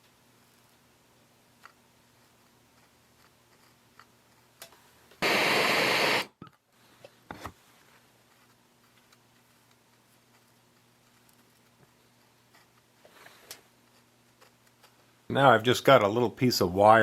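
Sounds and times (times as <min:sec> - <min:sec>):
gas torch flame hissing: 0:05.2 - 0:06.4.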